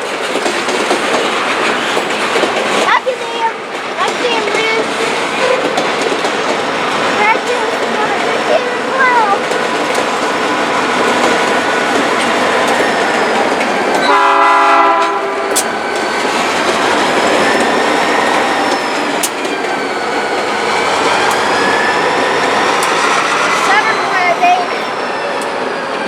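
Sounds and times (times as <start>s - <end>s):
wheel clatter on rails: 0.0s - 25.7s
train rumbling past: 0.0s - 26.0s
train horn blast: 14.0s - 15.7s.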